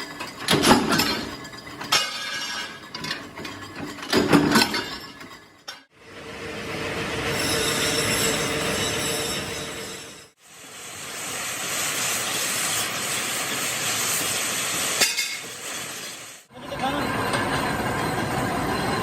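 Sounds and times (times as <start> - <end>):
metal clanking on metal: 0.0 - 5.9.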